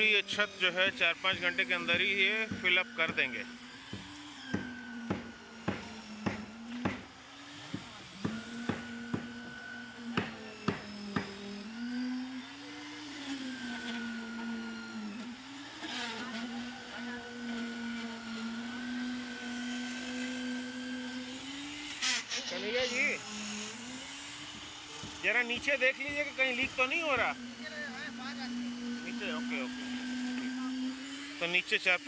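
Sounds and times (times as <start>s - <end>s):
machine motor humming: 0.0s - 32.0s
sharp knocks: 3.9s - 7.1s.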